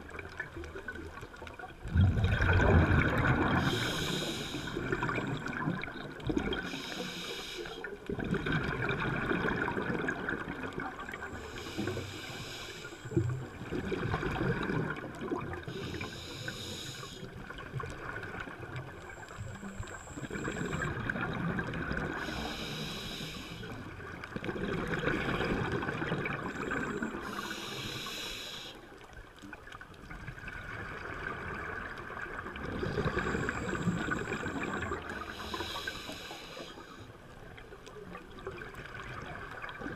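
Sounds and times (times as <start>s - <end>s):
exhaled bubbles gurgling: 0.0s - 39.9s
regulator inhale hiss: 3.4s - 5.2s, 6.6s - 8.0s, 11.3s - 13.2s, 15.7s - 17.4s, 22.1s - 23.9s, 26.5s - 28.9s, 33.0s - 37.2s.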